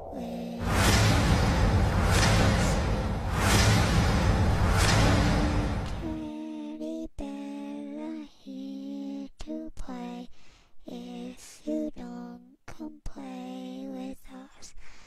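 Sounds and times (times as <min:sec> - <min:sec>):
loud rushing noise: 0:00.6 - 0:06.3.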